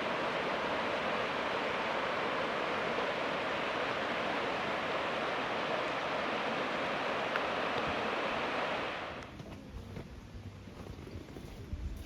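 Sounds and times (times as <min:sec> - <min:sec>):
stream rushing: 0:00.0 - 0:09.2.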